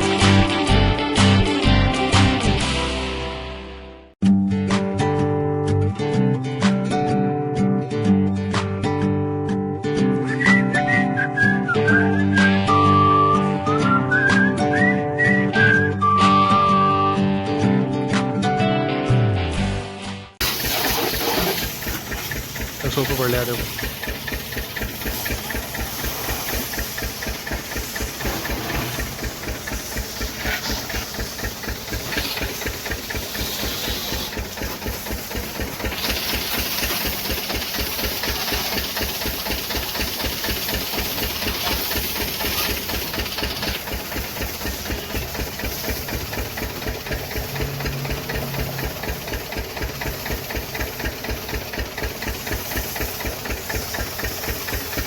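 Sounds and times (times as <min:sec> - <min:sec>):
pressure washer motor pulsing: 0:20.4 - 0:55.0
water jet hissing: 0:20.4 - 0:55.0.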